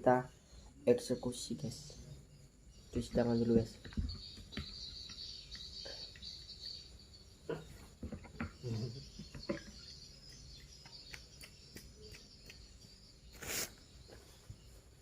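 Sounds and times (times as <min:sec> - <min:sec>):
crickets chirring: 0:00.0 - 0:15.0
small knocks and clicks: 0:08.0 - 0:13.0.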